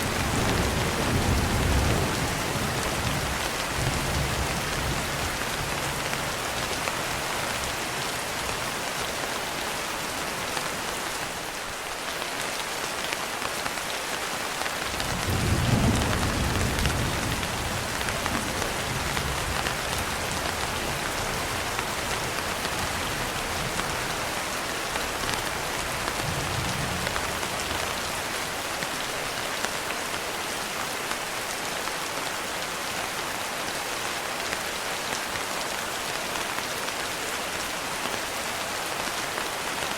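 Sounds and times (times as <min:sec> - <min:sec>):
steady rain: 0:00.0 - 0:39.9
thunder rumbling: 0:14.9 - 0:21.7.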